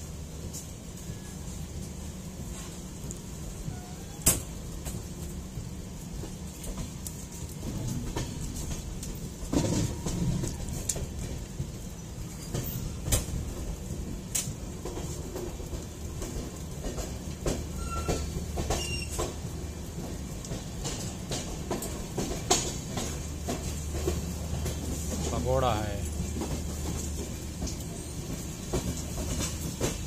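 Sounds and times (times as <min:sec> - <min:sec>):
train low rumble: 0:00.0 - 0:30.0
wheels clicking on track: 0:00.1 - 0:30.0.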